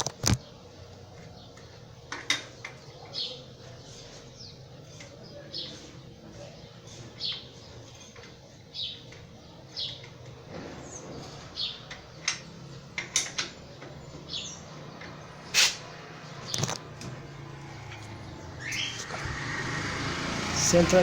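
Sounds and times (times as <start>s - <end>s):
high bird chirps: 18.2s - 20.1s.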